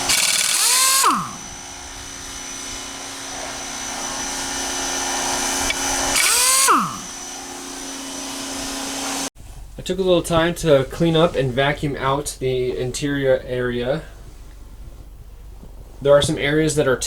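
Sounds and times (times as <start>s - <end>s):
vacuum cleaner motor running: 0.0s - 9.3s.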